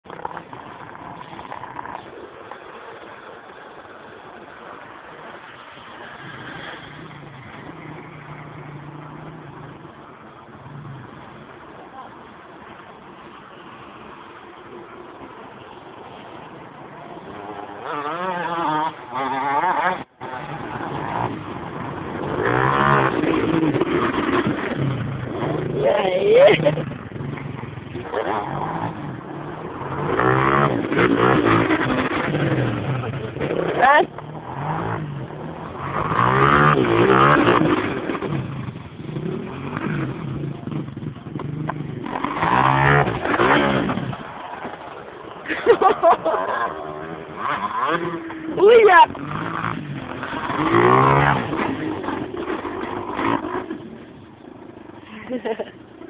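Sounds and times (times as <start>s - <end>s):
dirt bike engine revving: 17.0s - 55.8s.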